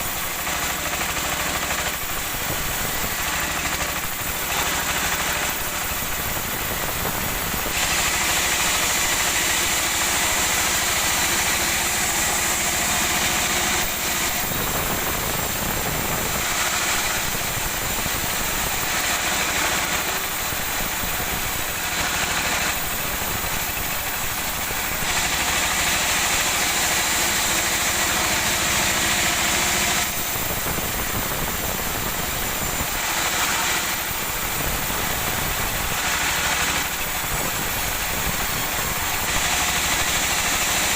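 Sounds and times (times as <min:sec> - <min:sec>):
saw cutting through log: 0:00.0 - 0:40.9
sawmill engine humming: 0:00.0 - 0:40.9.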